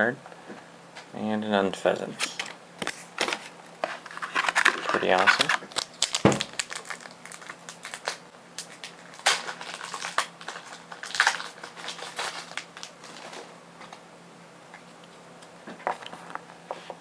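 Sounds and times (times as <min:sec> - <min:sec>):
faint steady hum: 0:00.0 - 0:17.0
foil pack crinkling: 0:02.3 - 0:13.5.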